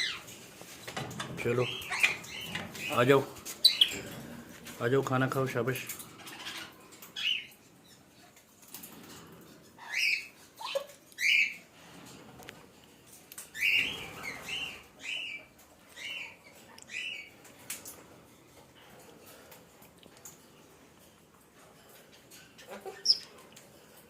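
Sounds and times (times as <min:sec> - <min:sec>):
parrot calling: 0:03.6 - 0:04.0, 0:09.8 - 0:11.6.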